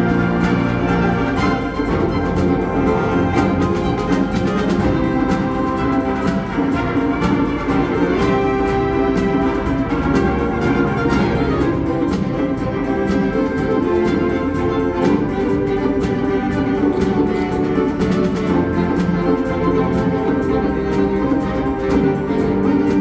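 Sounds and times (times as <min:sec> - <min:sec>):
quick regular percussion strokes: 0:00.0 - 0:23.0
wind band playing chords: 0:00.0 - 0:23.0.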